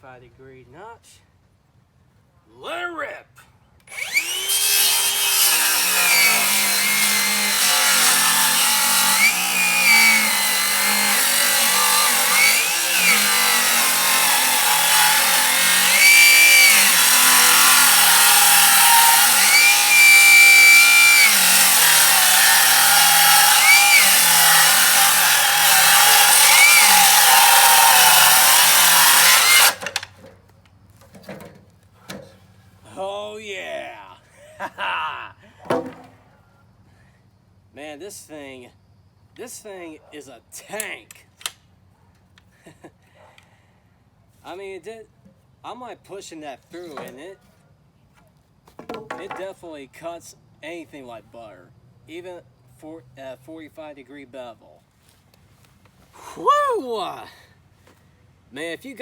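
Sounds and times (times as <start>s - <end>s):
circular saw cutting lumber: 3.9s - 30.4s, 35.6s - 36.2s, 46.7s - 47.4s, 48.8s - 49.5s.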